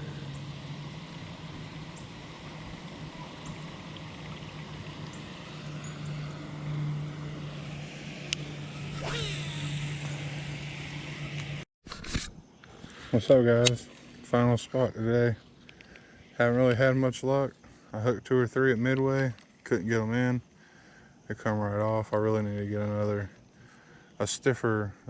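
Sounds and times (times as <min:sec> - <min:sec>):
distant motor humming: 0:00.0 - 0:11.7.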